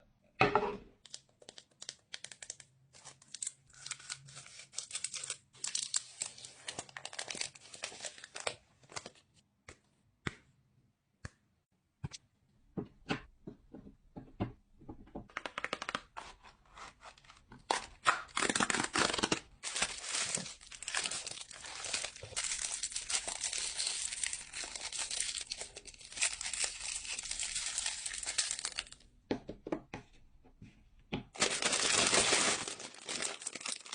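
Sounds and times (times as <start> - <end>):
wrappers crinkling and tearing: 1.1 - 9.2, 17.8 - 29.0, 31.4 - 33.9
clicks and taps: 11.2 - 16.1.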